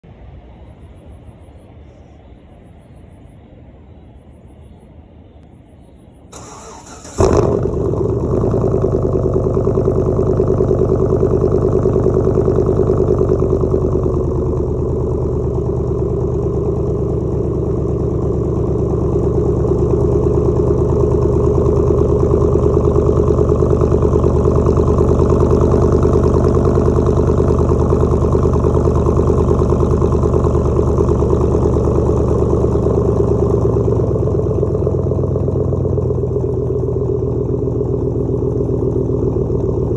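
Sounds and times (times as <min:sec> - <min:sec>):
car engine starting and idling: 0:06.3 - 0:39.9.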